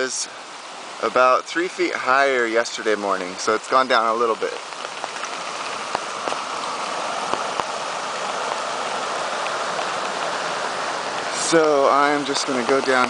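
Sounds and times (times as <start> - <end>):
creek rushing: 0.0 - 13.0.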